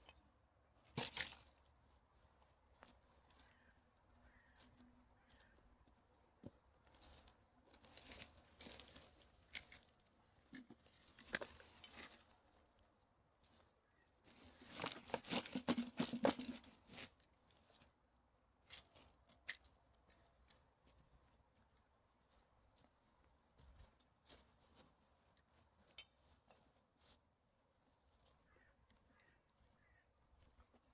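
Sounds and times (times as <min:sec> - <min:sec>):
dry debris rustling and crackling: 0:00.8 - 0:01.8, 0:06.8 - 0:13.6, 0:14.2 - 0:17.9.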